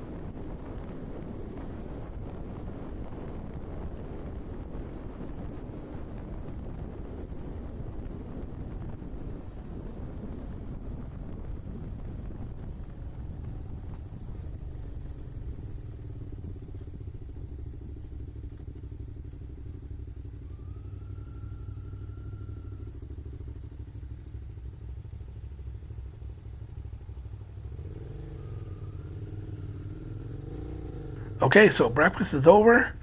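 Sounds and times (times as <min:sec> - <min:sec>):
faint high tone: 0:31.4 - 0:33.0.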